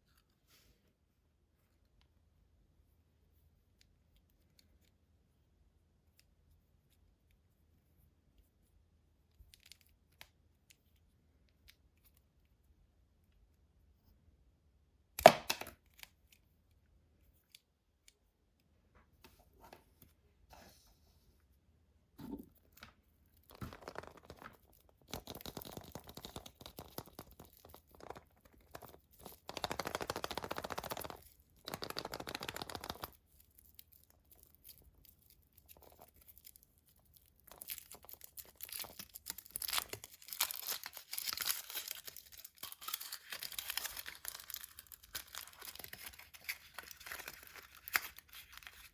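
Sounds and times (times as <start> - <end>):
wrapper tearing and crinkling: 23.4 - 48.9.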